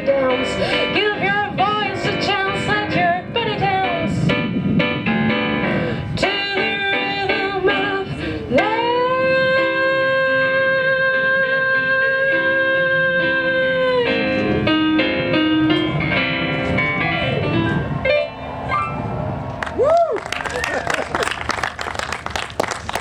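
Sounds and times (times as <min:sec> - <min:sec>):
woman singing: 0:00.0 - 0:04.4, 0:06.1 - 0:14.6.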